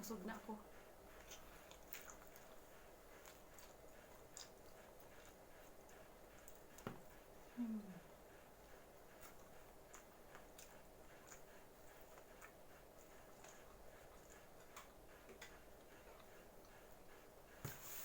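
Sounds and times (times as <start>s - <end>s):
mouth clicks of chewing: 3.2s - 5.4s.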